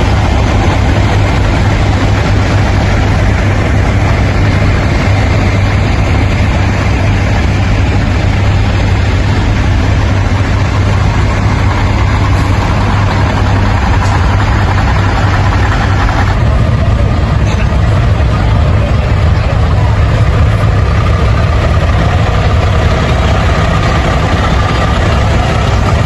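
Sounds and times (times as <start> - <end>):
road noise: 0.0 - 26.0
truck engine drone: 0.0 - 26.0.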